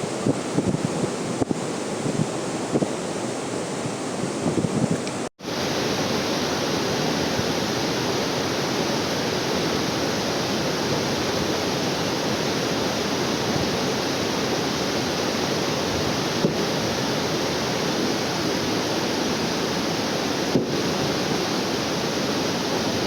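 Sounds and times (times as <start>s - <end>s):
waterfall roaring: 5.0s - 23.0s.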